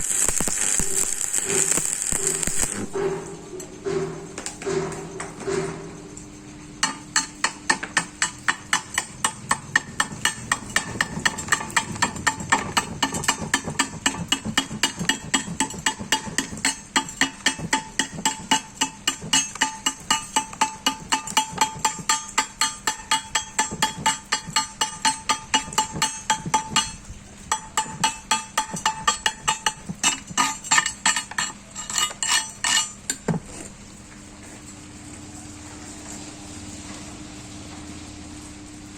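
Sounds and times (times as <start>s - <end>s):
chipping hammer striking metal: 0.0s - 5.8s, 6.8s - 33.2s.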